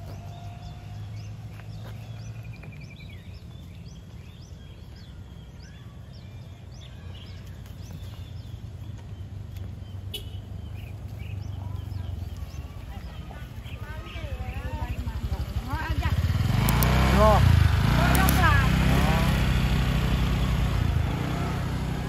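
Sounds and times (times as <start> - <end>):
small birds chirping: 0.0 - 22.0
sharp click: 16.6 - 17.0.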